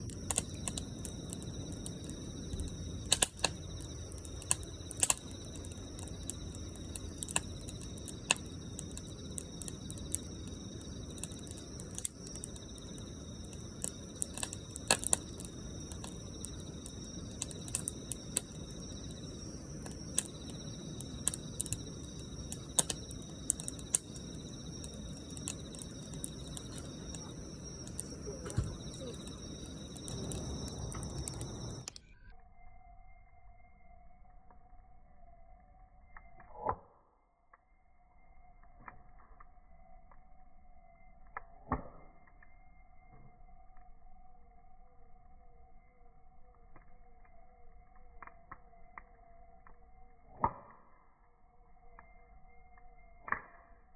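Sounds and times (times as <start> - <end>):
campfire crackling and popping: 0.0 - 32.0, 41.2 - 42.5, 46.5 - 51.1
low rush of flames: 0.0 - 32.2.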